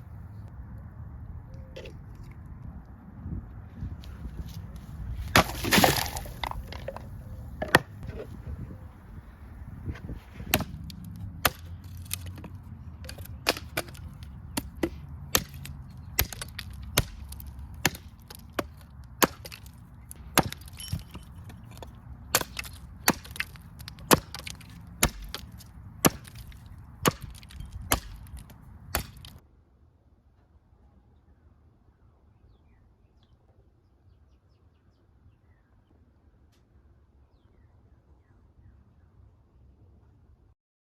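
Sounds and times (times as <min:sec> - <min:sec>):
machete chopping wood: 0:05.2 - 0:08.3, 0:10.0 - 0:29.4.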